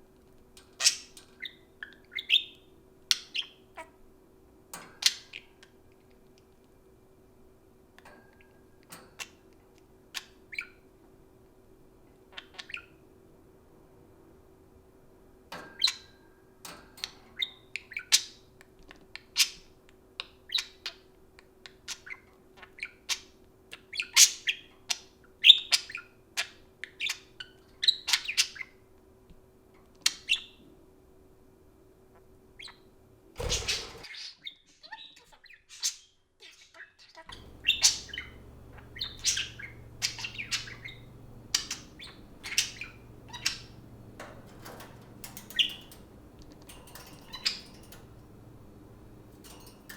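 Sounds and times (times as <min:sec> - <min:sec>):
budgerigars chirping: 0:33.4 - 0:34.3, 0:37.3 - 0:49.8
steady low hum: 0:37.3 - 0:49.9.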